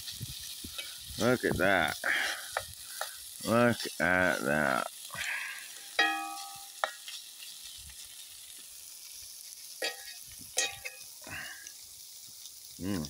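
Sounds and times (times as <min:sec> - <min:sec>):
food sizzling in skillet: 0:00.0 - 0:13.0
knife clinking on pan: 0:06.0 - 0:07.1, 0:09.8 - 0:11.1.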